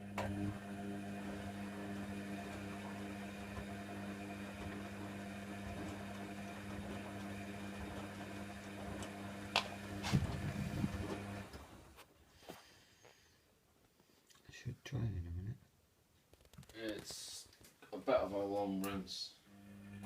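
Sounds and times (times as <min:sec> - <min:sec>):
washer dryer humming: 0:00.0 - 0:11.9.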